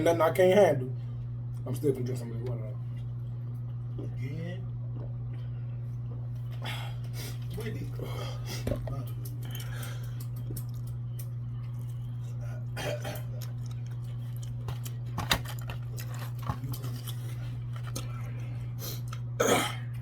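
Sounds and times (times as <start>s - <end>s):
steady low hum: 0.0s - 20.0s
eating noises: 6.5s - 19.3s.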